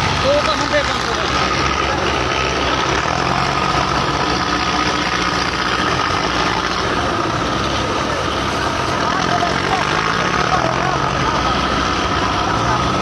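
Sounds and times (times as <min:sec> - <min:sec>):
tractor diesel engines running: 0:00.0 - 0:13.0.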